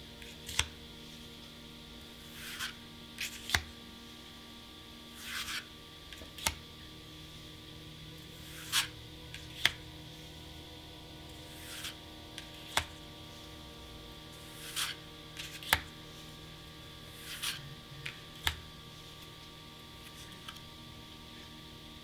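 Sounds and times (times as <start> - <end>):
faint steady hum: 0.0 - 22.0
plastic sleeves rustling: 11.1 - 21.6.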